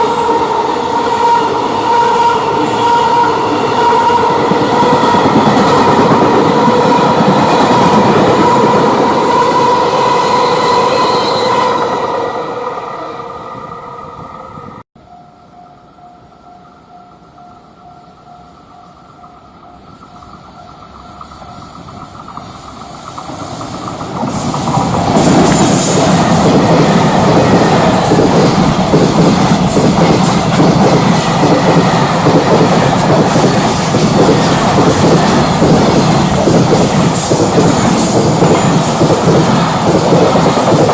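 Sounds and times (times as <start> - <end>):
freight train rolling wheels: 0.0 - 40.9
wagons clacking over rail joints: 20.1 - 40.9.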